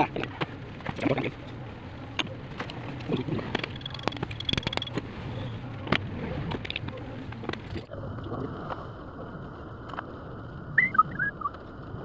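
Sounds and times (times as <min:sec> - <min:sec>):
metal parts clicking and knocking: 0:03.4 - 0:05.0.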